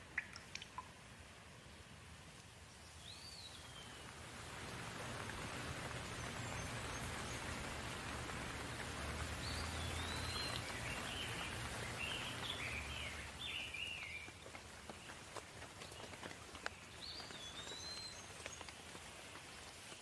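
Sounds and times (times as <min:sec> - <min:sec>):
steady rain: 0:00.0 - 0:20.0
bird chirping: 0:09.4 - 0:14.3.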